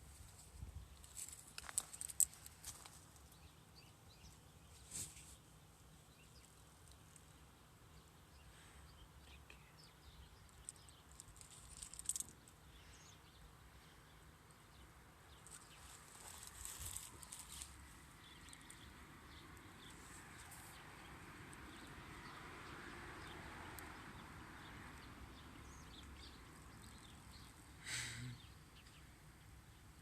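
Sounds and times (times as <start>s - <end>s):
soft crackles: 0.0s - 3.4s, 4.7s - 5.5s, 10.4s - 12.6s, 15.4s - 18.8s
faint outdoor ambience: 0.0s - 30.0s.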